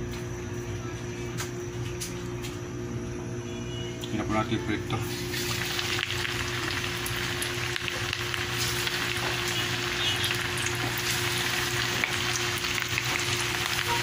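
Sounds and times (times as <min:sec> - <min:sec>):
meat deep-frying in hot oil: 0:04.1 - 0:14.0.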